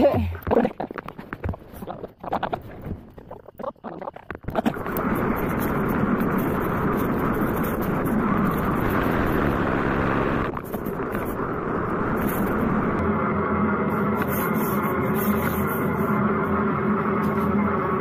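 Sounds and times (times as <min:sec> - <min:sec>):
off-road motorcycle engine: 0:04.7 - 0:15.7.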